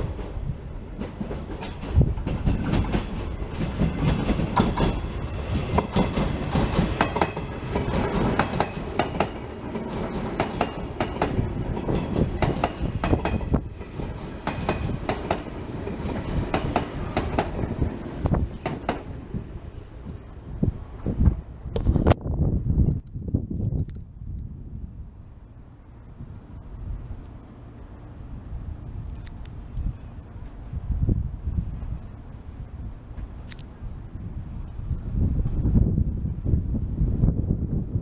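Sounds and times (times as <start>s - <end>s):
electric train running: 0.0s - 20.2s
wheels clacking over rail joints: 0.0s - 20.3s.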